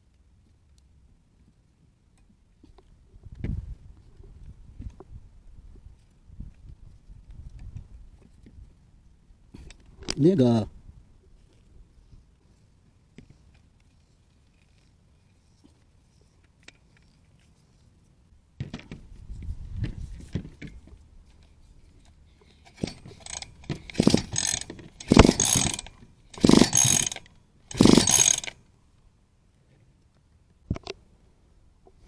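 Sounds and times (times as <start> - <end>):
ratchet wrench clicking: 22.7 - 28.6.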